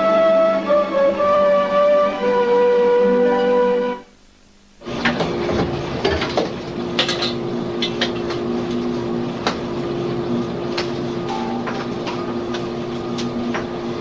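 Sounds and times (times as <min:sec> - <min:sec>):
boat machinery hum: 0:04.8 - 0:14.0.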